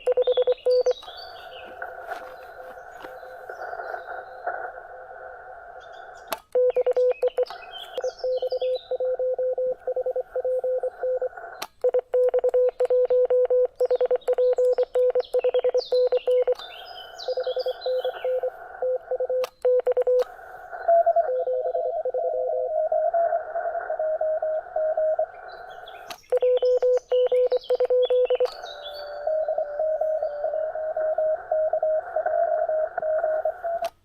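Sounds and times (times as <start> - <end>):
morse code beeps: 0.0 - 1.6, 6.6 - 23.3, 23.9 - 25.3, 26.3 - 33.8
radio band hiss: 0.0 - 6.5, 7.1 - 11.8, 14.5 - 34.0
birds chirping: 0.0 - 33.8
higher-pitched morse signal: 26.4 - 33.8.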